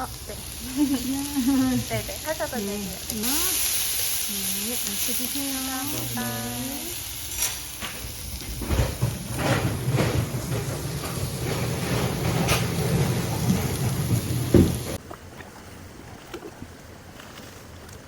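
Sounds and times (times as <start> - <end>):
meat sizzling on a grill: 0.0 - 15.0
thump: 14.5 - 14.9.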